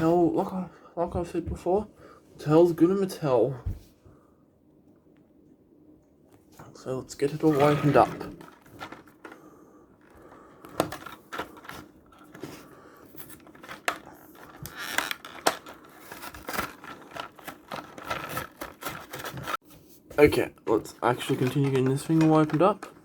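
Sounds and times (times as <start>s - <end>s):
packaging being opened: 13.1s - 19.6s.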